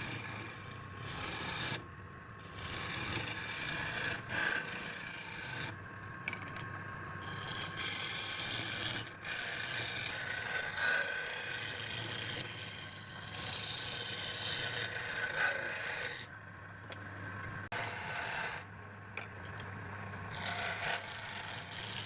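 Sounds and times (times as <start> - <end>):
tool rasping on wood: 0.0 - 1.8, 2.4 - 5.8, 7.2 - 16.3, 17.7 - 18.7, 20.3 - 22.0.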